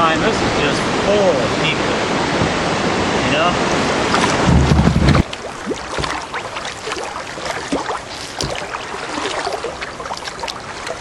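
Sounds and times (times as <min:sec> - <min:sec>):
river water trickling and splashing: 0:00.0 - 0:11.0
small water drips: 0:04.1 - 0:04.5, 0:05.1 - 0:11.0.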